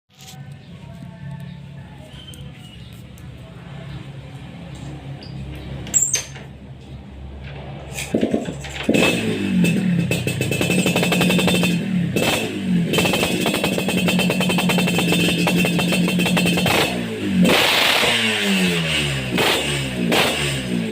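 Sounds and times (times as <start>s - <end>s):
motorcycle engine running: 8.1s - 20.9s.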